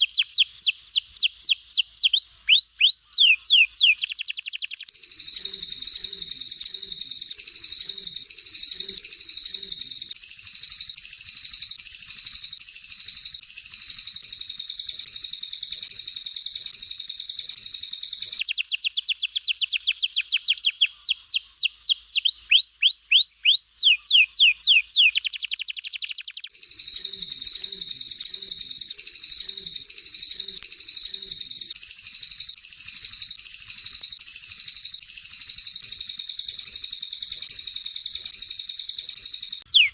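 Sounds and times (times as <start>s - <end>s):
high-pitched bird warbling: 0.0s - 9.9s, 18.3s - 25.7s, 39.7s - 39.9s
downward-sweeping bird whistles: 0.0s - 39.9s.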